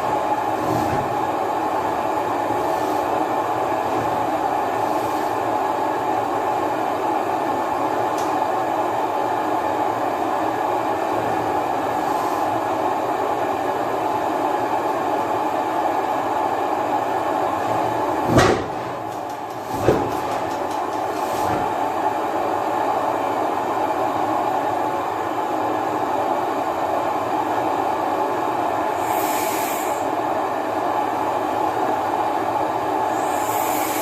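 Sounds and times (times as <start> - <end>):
blowtorch roaring hiss: 0.0 - 7.3, 11.4 - 13.3, 28.8 - 30.3, 33.0 - 34.0.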